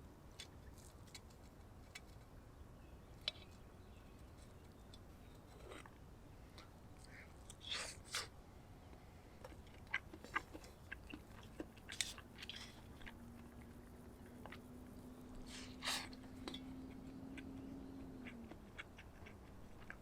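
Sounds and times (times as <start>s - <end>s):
faint steady hum: 0.0s - 20.0s
close-up clicks and crunching: 0.3s - 2.3s, 8.9s - 15.1s, 16.1s - 20.0s.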